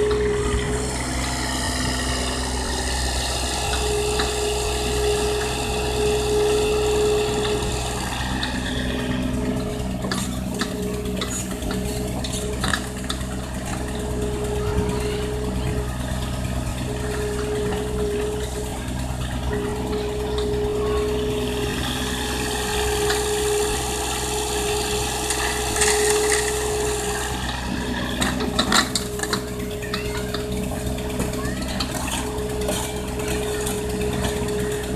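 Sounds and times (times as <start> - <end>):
excavator diesel engine running: 0.0 - 34.9
hydraulic whine: 0.0 - 34.9.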